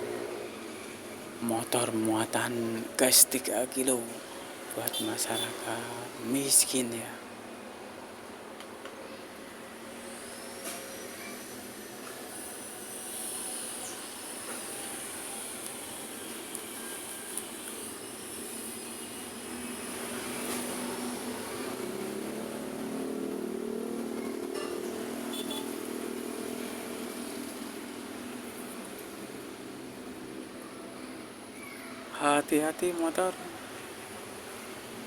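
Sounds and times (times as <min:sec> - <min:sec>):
street traffic passing: 0:00.0 - 0:35.0
passing vehicle engine: 0:19.3 - 0:30.4.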